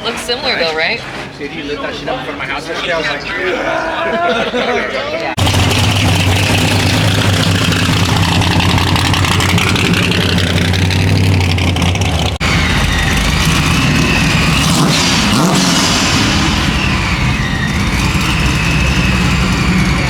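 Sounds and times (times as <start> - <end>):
car engines idling: 0.0 - 20.0
rough wavering engine sound: 5.4 - 20.0.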